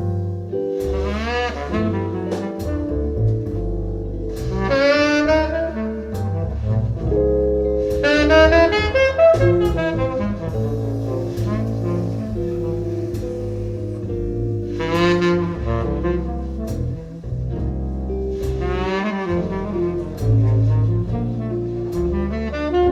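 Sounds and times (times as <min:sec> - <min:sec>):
lead melody: 0:00.0 - 0:22.9
steady bass line: 0:00.0 - 0:22.9.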